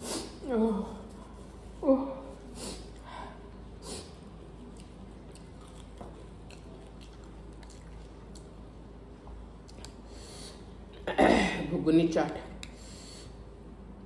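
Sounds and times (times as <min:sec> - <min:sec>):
quiet chewing: 0:02.4 - 0:10.2.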